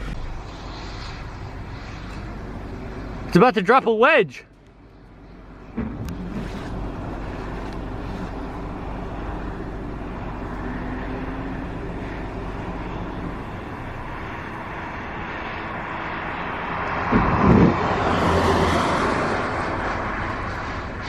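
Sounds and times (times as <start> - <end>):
strong wind buffeting microphone: 16.7 - 21.0.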